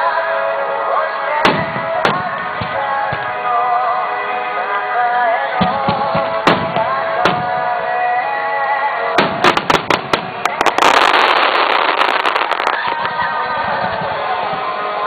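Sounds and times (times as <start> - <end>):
music: 0.0 - 15.0
fireworks bangs and crackling: 1.4 - 3.6, 5.6 - 7.8, 9.2 - 14.6.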